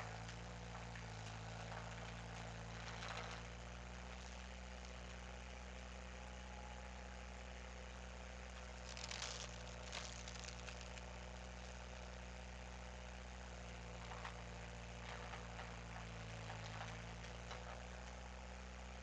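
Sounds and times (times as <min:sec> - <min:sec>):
short cracks and knocks: 0:00.0 - 0:05.2, 0:08.5 - 0:12.0, 0:13.8 - 0:18.3
skid steer engine running: 0:00.0 - 0:19.0.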